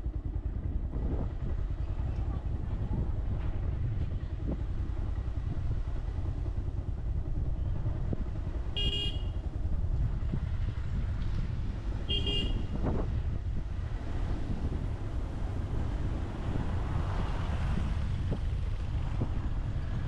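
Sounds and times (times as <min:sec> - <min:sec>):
motorcycle rumbling: 0:00.0 - 0:20.0
vehicle horn toots: 0:08.8 - 0:09.4, 0:12.1 - 0:12.8.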